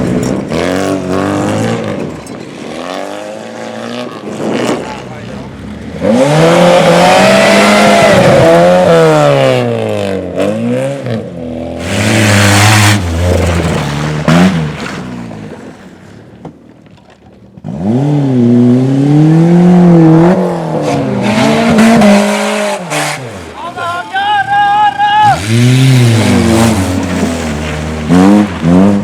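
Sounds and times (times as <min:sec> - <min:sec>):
tyres on gravel: 0:00.0 - 0:07.2, 0:11.8 - 0:18.0, 0:22.5 - 0:29.0
rally car engine revving: 0:00.0 - 0:16.4, 0:17.5 - 0:29.0.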